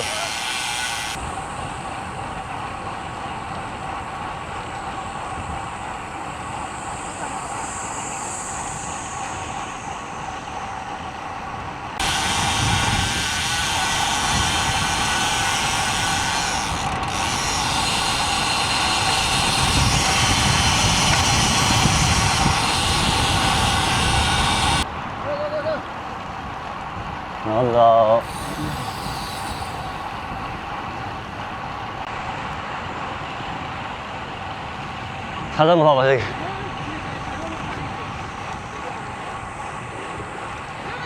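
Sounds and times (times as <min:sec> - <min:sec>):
bicycle tyre noise: 0:00.0 - 0:01.6, 0:04.8 - 0:24.9, 0:28.2 - 0:32.0
wind on microphone: 0:04.6 - 0:25.2, 0:28.2 - 0:32.0.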